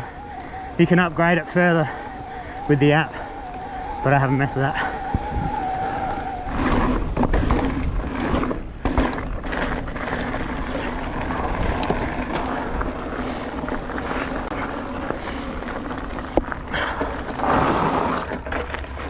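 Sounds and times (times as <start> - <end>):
electric motor whine: 0.0 - 7.4
bike tyres rumbling on dirt: 0.0 - 19.0.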